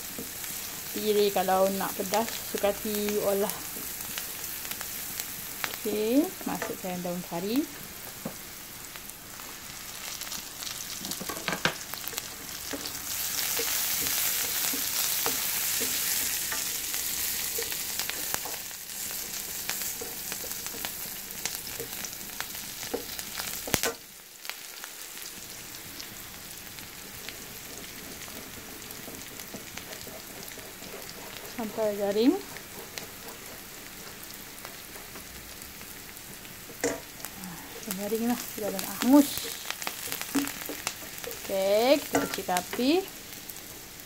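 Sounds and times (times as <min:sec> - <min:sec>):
food sizzling in butter: 0:00.0 - 0:44.0
spatula scraping and tapping pan: 0:10.9 - 0:22.0, 0:27.3 - 0:35.4, 0:36.3 - 0:37.2, 0:37.8 - 0:42.9.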